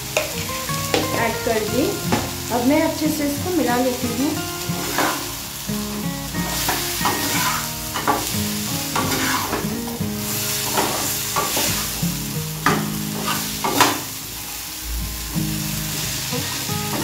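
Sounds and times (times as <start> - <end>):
oil sizzling: 0.0 - 17.0
wooden spatula scraping wok: 4.7 - 5.4, 6.4 - 9.8, 10.5 - 12.0, 12.8 - 14.1.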